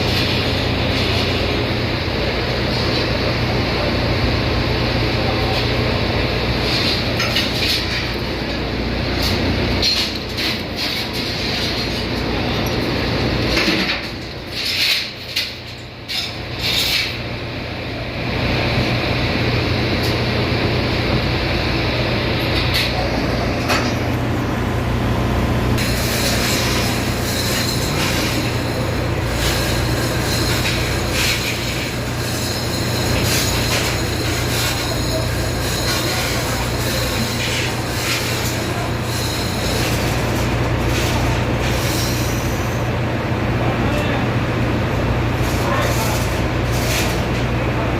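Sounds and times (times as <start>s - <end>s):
machinery drone: 0.0s - 47.9s
metal clanking and scraping: 6.6s - 17.3s, 22.4s - 24.2s, 25.8s - 42.8s, 45.4s - 47.5s.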